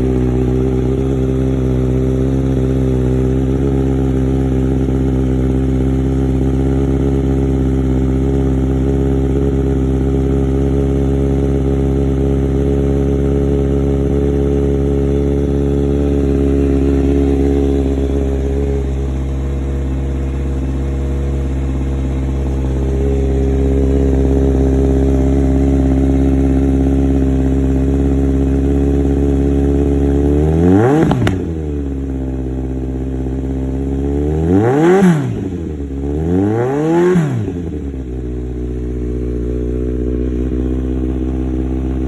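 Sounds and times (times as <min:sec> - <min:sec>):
motorcycle engine idling: 0:00.0 - 0:42.0
engine revving: 0:28.5 - 0:32.1, 0:34.2 - 0:38.0.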